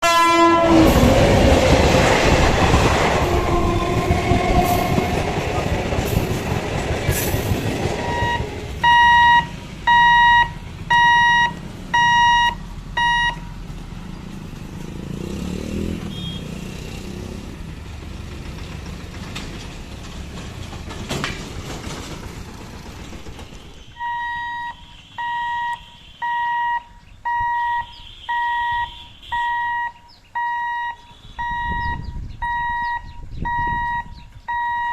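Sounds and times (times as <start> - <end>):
train wheels rumbling: 0.0 - 25.2
crossing warning buzzer beeping: 8.0 - 13.5, 16.1 - 16.5, 24.0 - 34.9.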